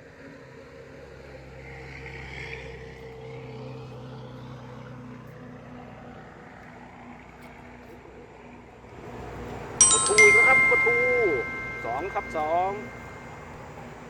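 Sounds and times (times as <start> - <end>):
motor engine humming: 8.9 - 14.0.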